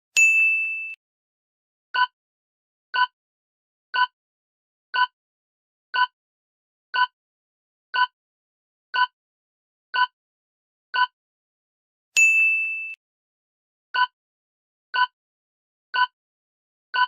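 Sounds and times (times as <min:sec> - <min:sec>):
clock-like timer ticks: 0:06.0 - 0:06.2, 0:07.0 - 0:07.2, 0:08.0 - 0:08.2, 0:09.0 - 0:09.2, 0:10.0 - 0:10.2, 0:14.0 - 0:14.2, 0:15.0 - 0:15.2, 0:16.0 - 0:16.2.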